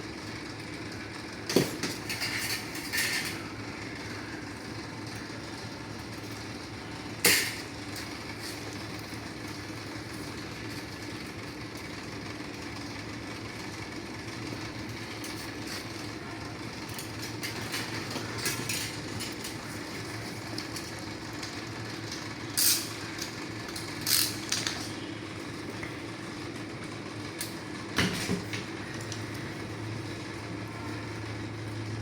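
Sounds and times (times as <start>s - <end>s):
machinery hum: 0.0s - 32.0s.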